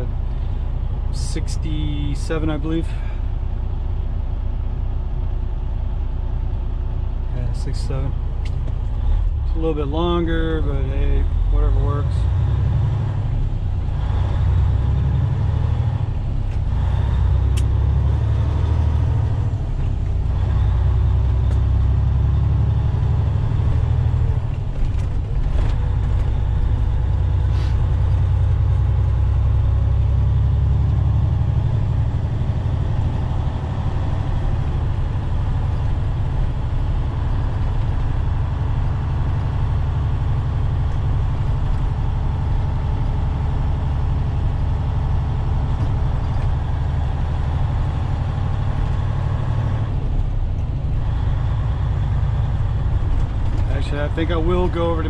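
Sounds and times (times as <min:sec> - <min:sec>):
diesel truck engine rumbling: 0:00.0 - 0:55.0.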